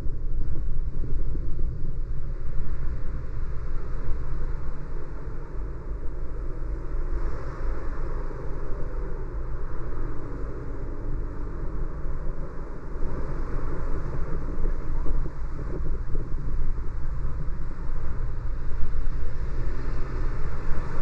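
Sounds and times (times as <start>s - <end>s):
car road rumble: 0.0s - 21.0s.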